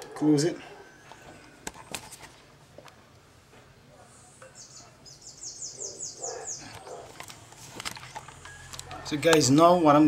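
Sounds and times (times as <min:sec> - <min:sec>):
bird chirping: 0:04.3 - 0:07.1
handling clicks and knocks: 0:06.7 - 0:09.7.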